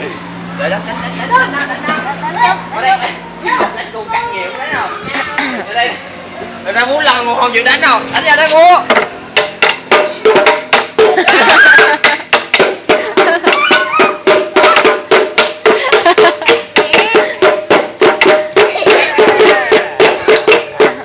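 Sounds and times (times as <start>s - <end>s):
person singing: 18.7s - 21.0s.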